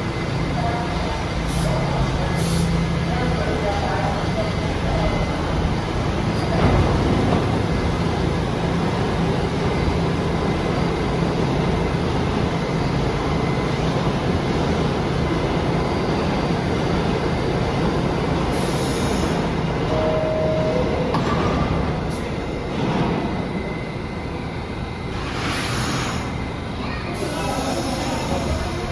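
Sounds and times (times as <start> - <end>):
subway train rumbling: 0.0 - 28.9
steady tone: 19.9 - 22.0.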